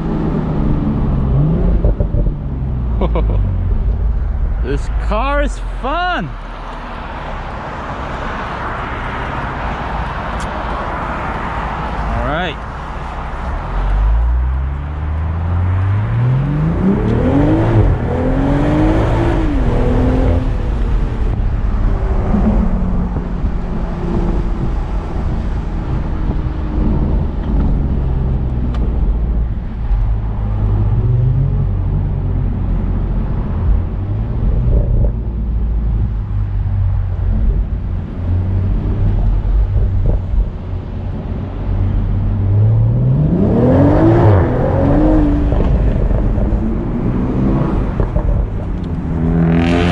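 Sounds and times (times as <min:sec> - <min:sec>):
car engine accelerating hard: 0:13.4 - 0:49.9.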